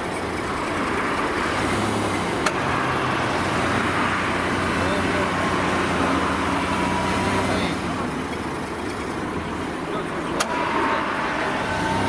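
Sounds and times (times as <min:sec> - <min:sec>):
driving noise rumble: 0:00.0 - 0:12.0
suv engine running: 0:00.0 - 0:12.0.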